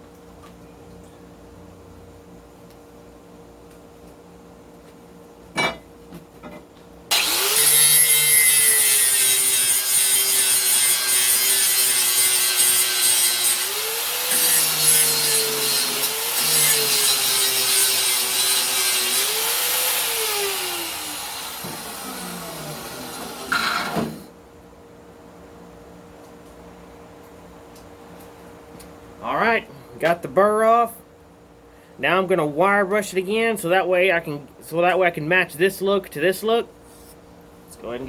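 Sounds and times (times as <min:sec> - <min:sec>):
electric grinder grinding steel: 0:07.1 - 0:24.2.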